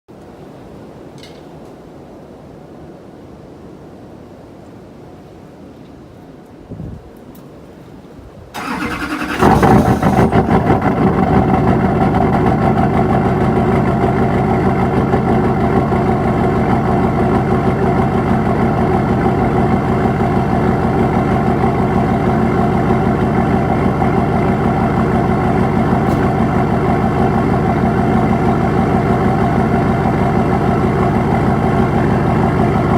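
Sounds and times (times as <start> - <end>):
starter cranking: 8.6 - 11.2
diesel engine starting and idling: 8.6 - 32.9.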